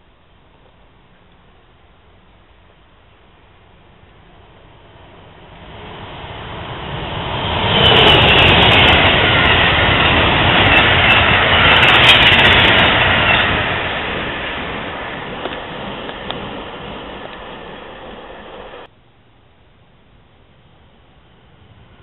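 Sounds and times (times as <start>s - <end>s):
passenger train passing at speed: 3.2s - 18.9s, 21.2s - 22.0s.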